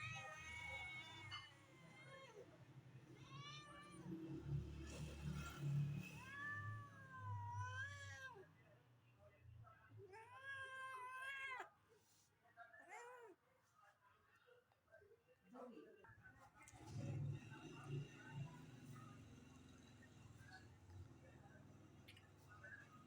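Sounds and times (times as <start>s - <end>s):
cat meowing: 3.1s - 4.1s.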